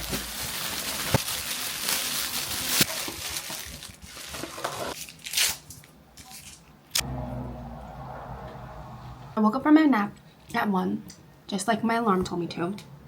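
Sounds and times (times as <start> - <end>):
rustling and crinkling handling: 0.0 - 6.7.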